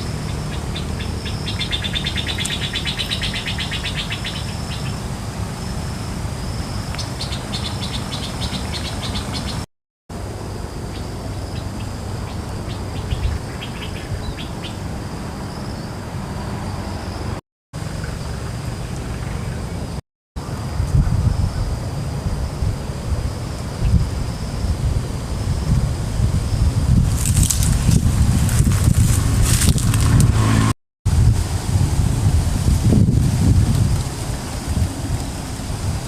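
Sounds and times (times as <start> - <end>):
rapid pulsed chirping: 0.0 - 9.6
wind rushing over microphone: 19.1 - 36.0.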